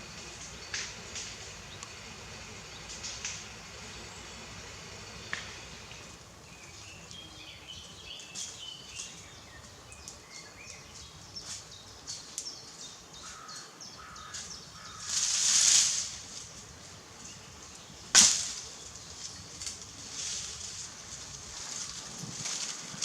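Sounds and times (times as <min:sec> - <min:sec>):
birds chirping: 0:00.0 - 0:15.2
caw-like bird calls: 0:13.2 - 0:15.2.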